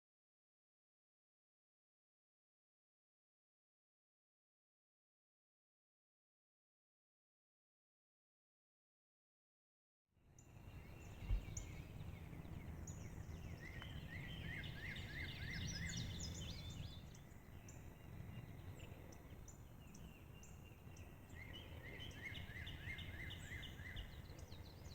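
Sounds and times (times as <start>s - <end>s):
songbirds chirping: 10.2s - 24.9s
low wind rumble: 10.4s - 24.9s.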